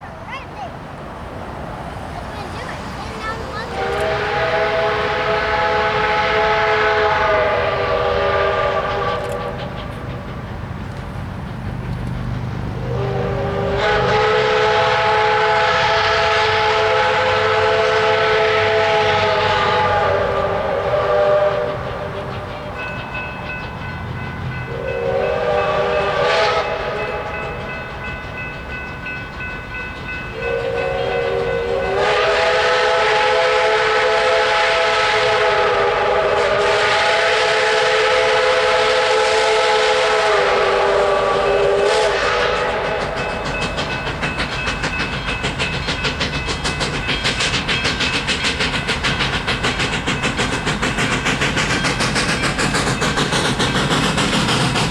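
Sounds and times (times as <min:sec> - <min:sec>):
low train rumble: 0:00.0 - 0:54.9
steam whistle blasts: 0:03.7 - 0:10.1, 0:12.8 - 0:23.2, 0:24.7 - 0:27.7, 0:30.3 - 0:44.2.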